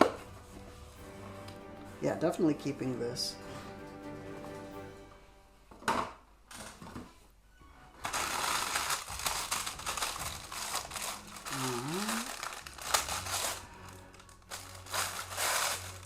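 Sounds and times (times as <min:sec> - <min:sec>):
packaging crinkling: 0:08.0 - 0:16.0.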